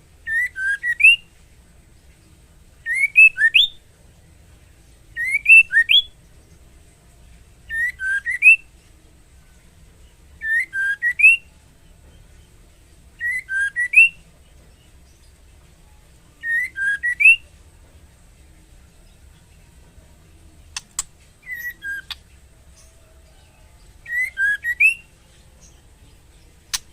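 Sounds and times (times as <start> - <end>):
bird whistled call: 0.3 - 1.2, 2.9 - 3.8, 5.2 - 6.1, 7.7 - 8.6, 13.2 - 14.2, 16.4 - 17.4, 21.4 - 22.2, 24.1 - 25.1.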